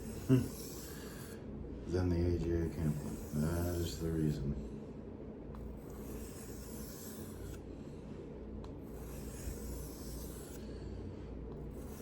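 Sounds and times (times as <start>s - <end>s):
knife scraping on whetstone: 2.7s - 4.4s, 5.7s - 7.6s, 8.8s - 10.6s, 11.7s - 12.0s.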